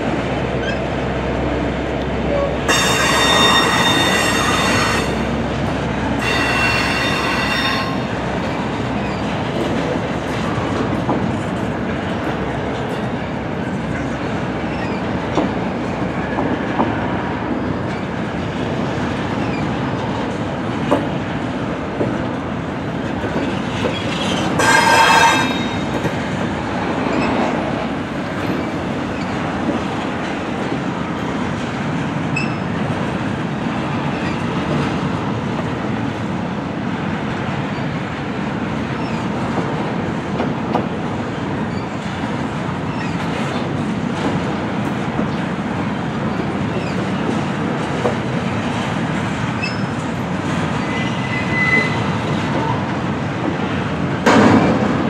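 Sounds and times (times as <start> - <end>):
container train rolling past: 0.0 - 55.0
high wheel squeal: 2.7 - 5.3, 6.2 - 8.1, 23.4 - 26.0, 50.8 - 52.2.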